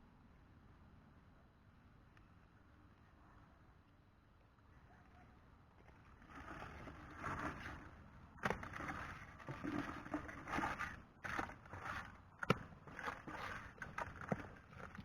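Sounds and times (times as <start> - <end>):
water splashing and sloshing: 8.6 - 15.0.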